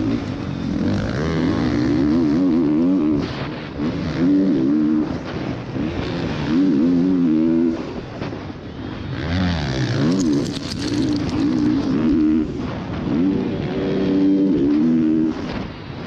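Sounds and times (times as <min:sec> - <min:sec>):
motocross bike engines revving: 0:00.0 - 0:15.5
sharp engine crackles: 0:09.0 - 0:12.4.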